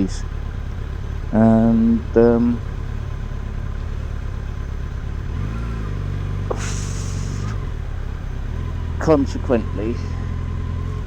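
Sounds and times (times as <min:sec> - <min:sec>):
motorcycle engine running: 0:00.0 - 0:11.0
short hiss: 0:06.5 - 0:07.6.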